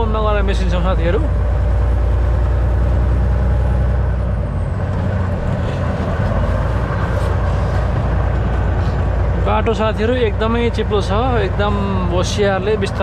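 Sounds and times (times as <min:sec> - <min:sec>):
road and tyre noise: 0:00.0 - 0:13.0
truck engine drone: 0:00.0 - 0:13.0.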